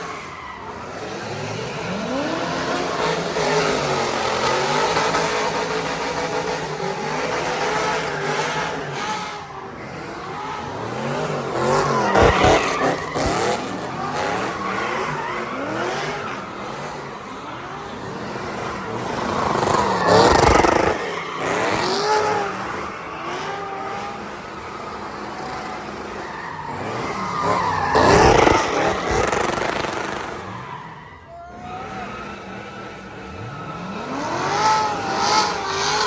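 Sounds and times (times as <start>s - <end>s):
car engine revving: 0.0s - 36.0s
tyres squealing: 10.6s - 17.1s, 18.1s - 23.8s.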